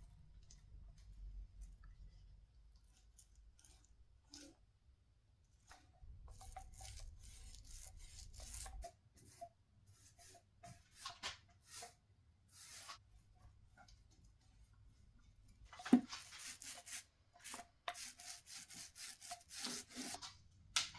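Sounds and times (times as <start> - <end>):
hand rubbing and scraping wood: 5.6 - 20.4.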